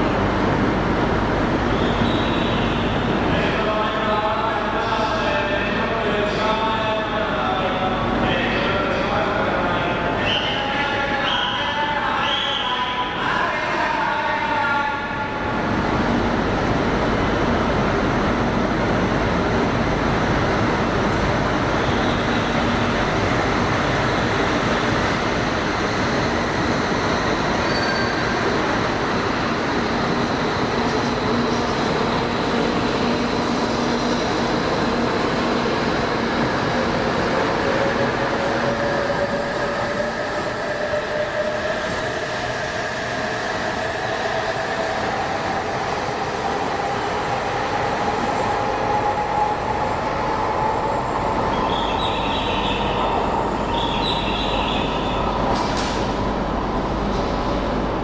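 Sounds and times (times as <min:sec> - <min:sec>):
train rolling noise: 0:15.4 - 0:58.0.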